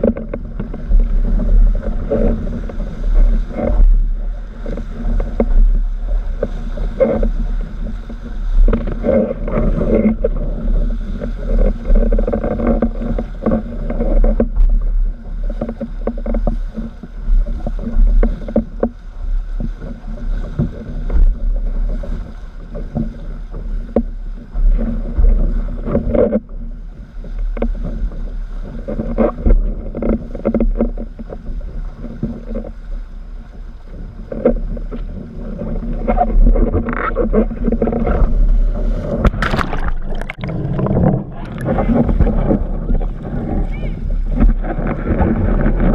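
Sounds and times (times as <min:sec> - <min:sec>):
board slapping choppy water: 0:00.0 - 0:45.9
wind buffeting microphone: 0:00.0 - 0:45.9
water rushing: 0:32.2 - 0:45.9.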